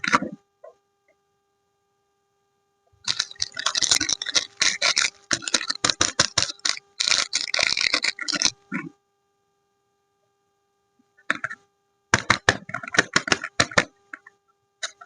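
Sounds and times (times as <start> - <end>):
packaging crinkling: 3.0 - 8.6.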